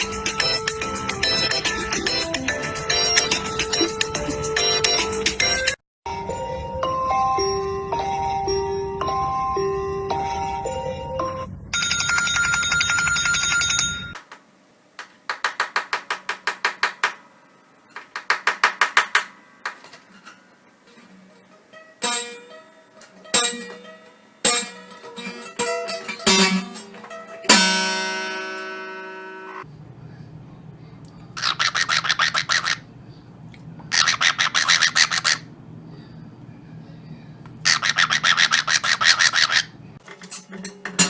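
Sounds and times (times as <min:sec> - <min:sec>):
struck or plucked musical notes: 0:18.0 - 0:29.6, 0:40.0 - 0:41.0
bell-like trilling rings: 0:20.1 - 0:29.6.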